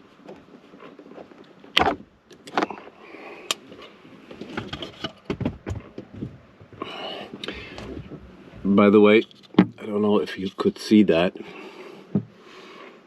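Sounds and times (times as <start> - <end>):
speaker handling clicks and knocks: 4.3 - 6.8, 9.2 - 9.8.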